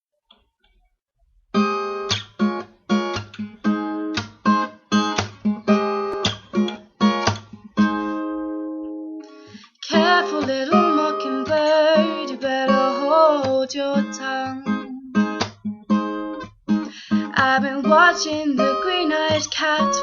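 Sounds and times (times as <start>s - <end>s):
acoustic guitar strumming: 1.5s - 20.0s
person singing: 9.6s - 15.4s, 17.1s - 20.0s.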